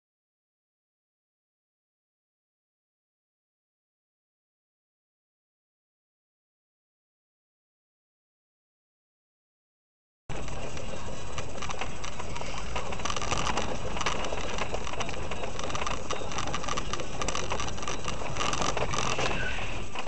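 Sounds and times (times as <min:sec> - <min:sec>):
car road and engine noise: 0:10.3 - 0:20.0
short clicks and crackles: 0:10.4 - 0:20.0.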